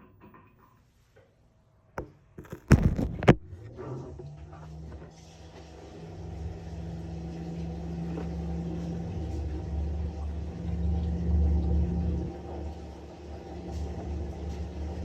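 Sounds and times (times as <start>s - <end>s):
washing machine running: 3.8s - 15.0s.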